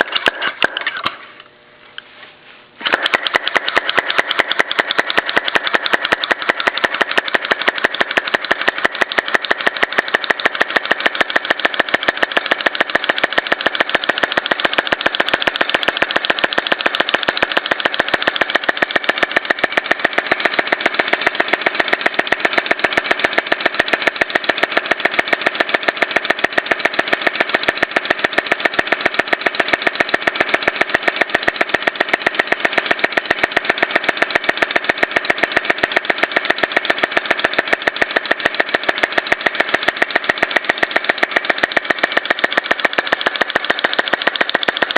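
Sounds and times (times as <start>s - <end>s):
small model engine clicking: 0.0s - 1.2s, 2.8s - 44.9s.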